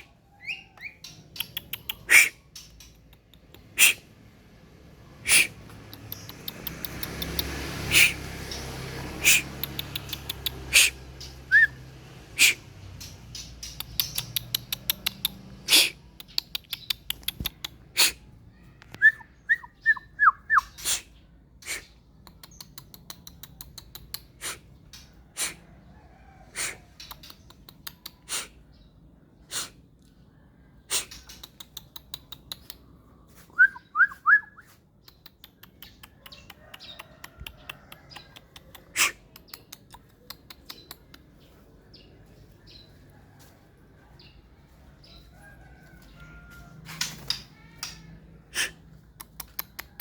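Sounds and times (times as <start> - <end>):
bird clicking and ticking: 0.8 - 4.1, 5.2 - 18.1, 21.6 - 25.6, 26.6 - 28.4, 30.9 - 33.0, 35.0 - 41.6, 46.9 - 50.0.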